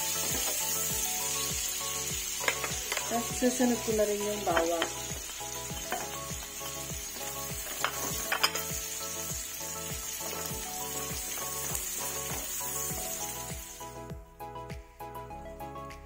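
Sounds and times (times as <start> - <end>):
garlic and onion sizzling in fat: 0.0 - 14.2
soft background music with beat: 0.0 - 16.0
utensil knocking on pan: 2.4 - 3.2, 4.4 - 6.6.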